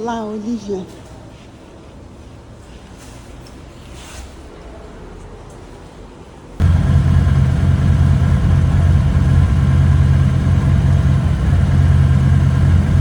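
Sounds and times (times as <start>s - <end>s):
motorcycle engine running: 6.6s - 13.0s.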